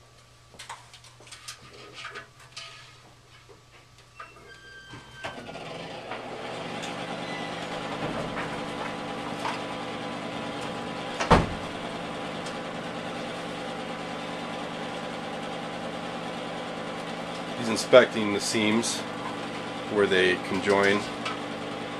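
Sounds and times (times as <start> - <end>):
motor humming: 5.3 - 21.9.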